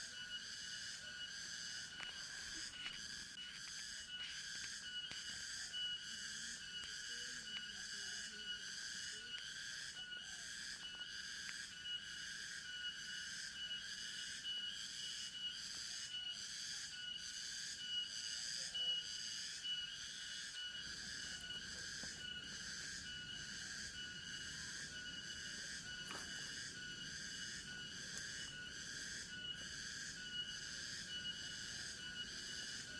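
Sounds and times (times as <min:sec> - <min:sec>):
insects droning: 0:00.0 - 0:32.9.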